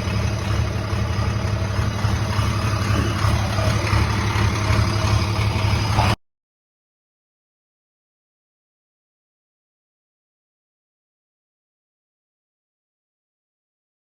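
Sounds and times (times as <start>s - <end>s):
vehicle engine humming: 0.0s - 6.2s.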